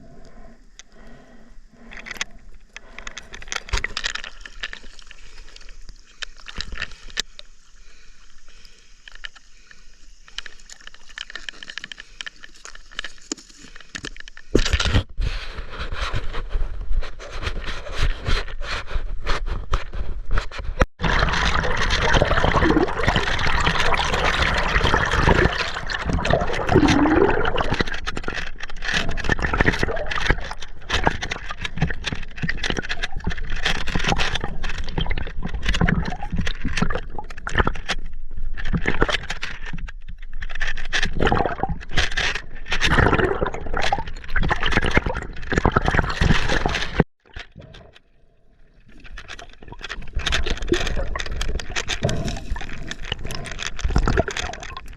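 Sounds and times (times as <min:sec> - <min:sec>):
river water splashing and gurgling: 0:21.0 - 0:33.1
scrapes and knocks: 0:49.0 - 0:54.9.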